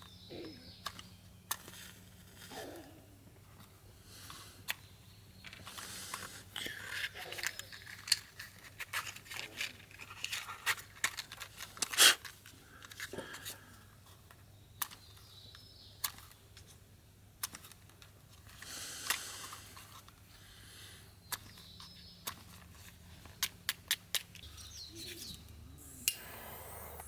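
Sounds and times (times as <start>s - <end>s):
clicks and rustling of objects: 0.0s - 25.6s.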